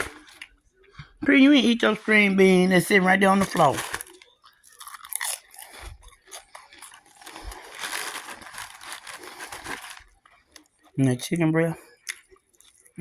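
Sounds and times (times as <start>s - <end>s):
person chewing crispy chicken: 0.0s - 1.1s, 3.2s - 10.9s, 11.9s - 13.0s.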